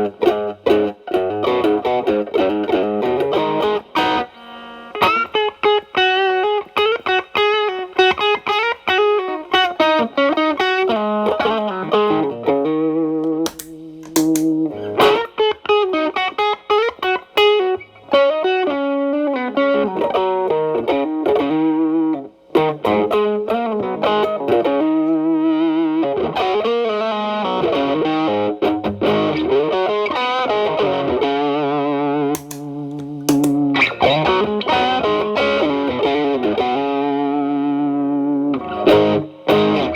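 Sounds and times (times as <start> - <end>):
overdriven electric guitar blues: 32.4 - 39.9.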